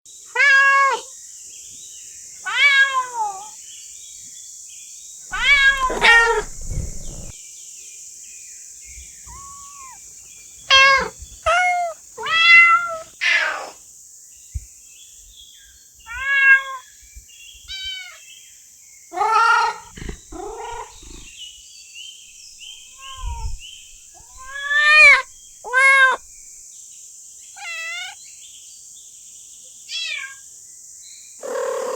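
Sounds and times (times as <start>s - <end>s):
cat meowing: 5.3s - 7.3s, 9.3s - 10.0s, 10.7s - 13.7s, 16.1s - 16.8s, 19.2s - 21.3s, 22.9s - 26.3s.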